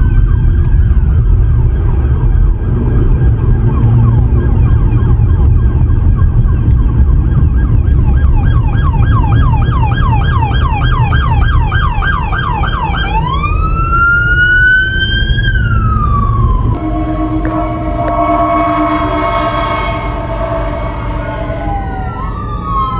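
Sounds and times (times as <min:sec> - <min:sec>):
emergency siren yelp and wail: 0:00.0 - 0:22.9
engine and road rumble: 0:00.0 - 0:22.9
steady horn-like tone: 0:16.7 - 0:22.4.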